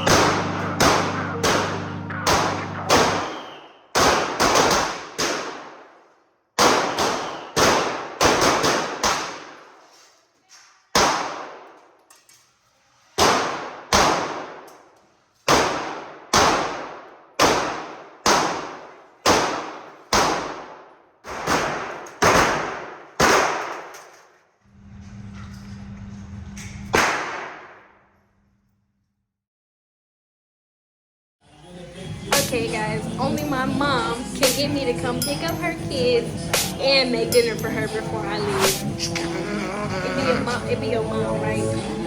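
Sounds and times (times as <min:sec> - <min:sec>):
gunshots with long echo: 0:00.0 - 0:09.7, 0:11.0 - 0:11.8, 0:13.2 - 0:14.7, 0:15.4 - 0:24.0, 0:26.9 - 0:28.0.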